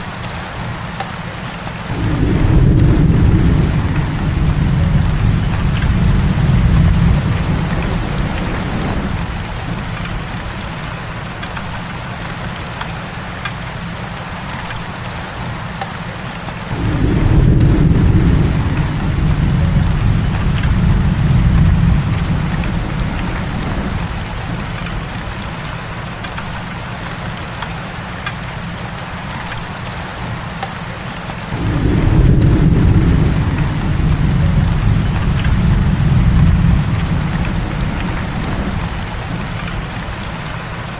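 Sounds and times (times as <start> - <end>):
heavy rain: 0.0 - 40.9
thunder rumbling: 1.9 - 12.4, 16.7 - 26.8, 31.5 - 40.9.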